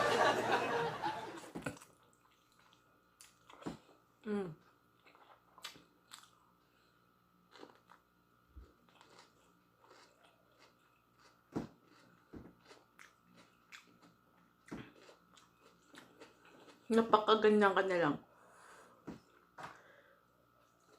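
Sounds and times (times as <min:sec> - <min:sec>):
chewing and biting: 0:08.6 - 0:16.9.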